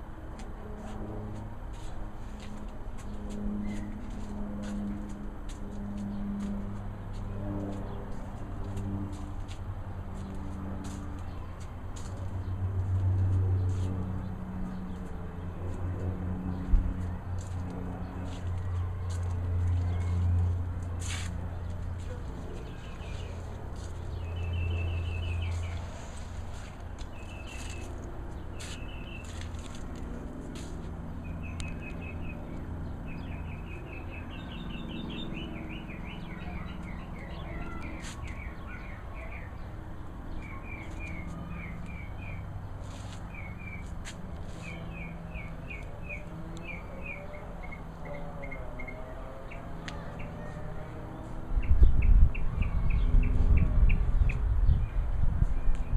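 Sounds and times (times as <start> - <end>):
songbird chirping and trilling: 22.5 - 28.0, 31.3 - 55.0.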